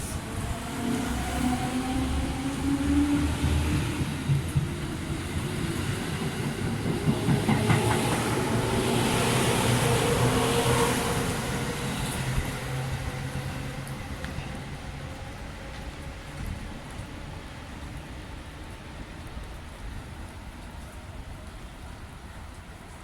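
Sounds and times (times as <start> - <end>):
train wheels clicking over rail joints: 3.1 - 8.9.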